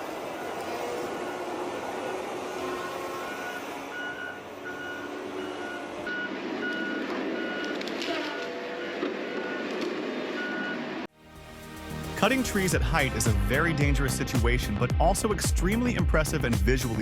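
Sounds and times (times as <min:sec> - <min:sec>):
reversing alarm beeping: 0:00.0 - 0:10.9
heavy machine engine: 0:00.0 - 0:11.1.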